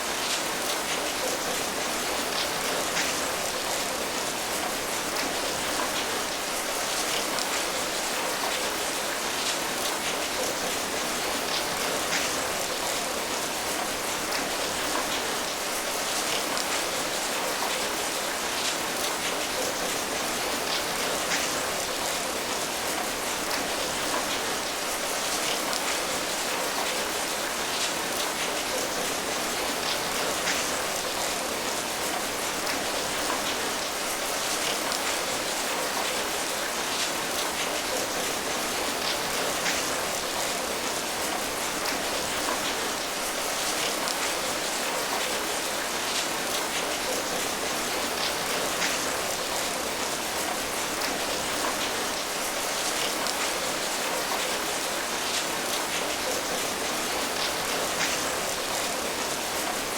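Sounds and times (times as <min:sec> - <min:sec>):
steady rain patter: 0:00.0 - 0:59.9.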